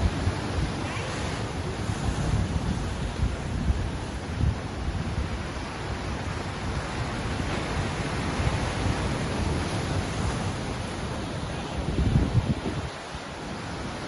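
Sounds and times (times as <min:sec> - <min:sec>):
ocean surf washing in: 0:00.0 - 0:14.0.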